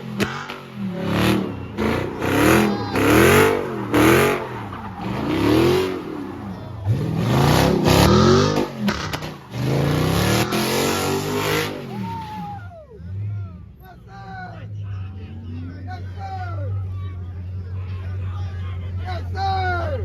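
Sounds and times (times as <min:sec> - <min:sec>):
car engine revving hard: 0:00.0 - 0:12.5.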